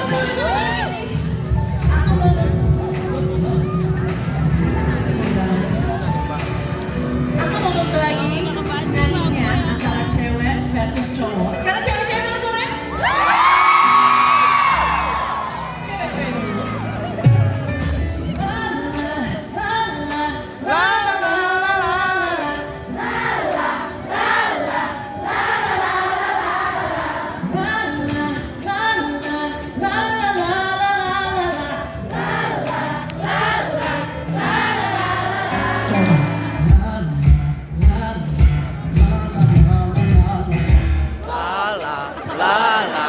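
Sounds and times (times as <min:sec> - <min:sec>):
heavy drum beats: 0:00.0 - 0:13.7, 0:32.1 - 0:42.4
live pop band playing: 0:00.0 - 0:43.0
many voices singing: 0:18.6 - 0:37.2, 0:41.1 - 0:43.0.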